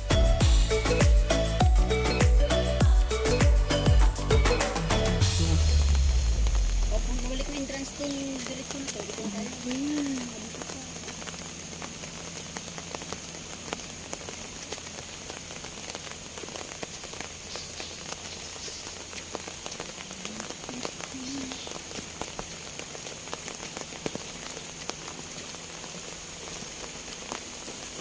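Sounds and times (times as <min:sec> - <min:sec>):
light crackles and taps: 0:07.4 - 0:28.0.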